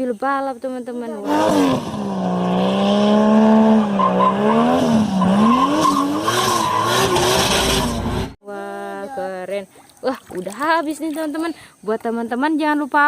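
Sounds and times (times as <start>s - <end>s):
race car engine drone: 1.2s - 8.4s.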